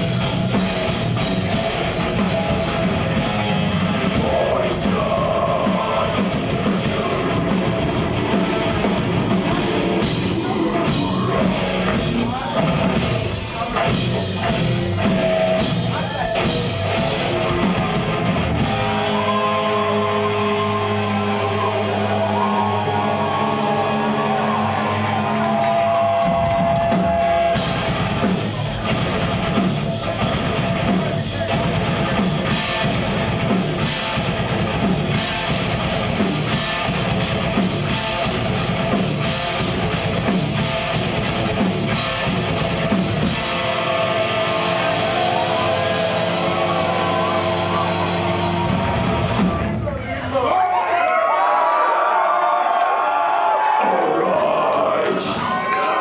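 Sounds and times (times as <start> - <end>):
death metal band playing live: 0.0 - 50.4, 53.8 - 56.0
held ringing guitar chords: 27.6 - 49.4.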